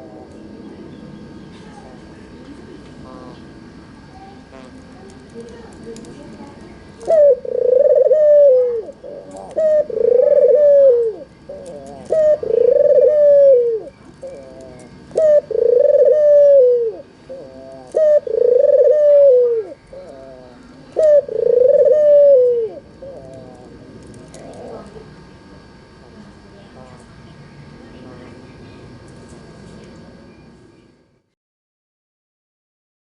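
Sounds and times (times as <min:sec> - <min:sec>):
dove cooing: 0:07.0 - 0:25.2.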